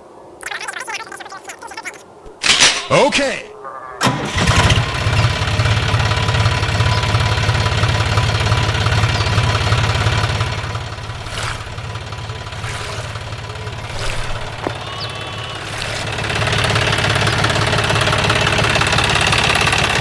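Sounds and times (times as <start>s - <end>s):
small engine running: 4.3s - 20.0s.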